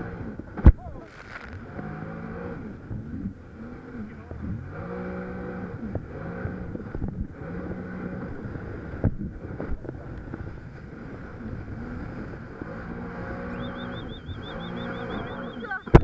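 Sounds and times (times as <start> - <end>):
jet ski engine running: 0.0 - 16.0
wind on microphone: 5.8 - 16.0
high warbling tone: 13.3 - 16.0.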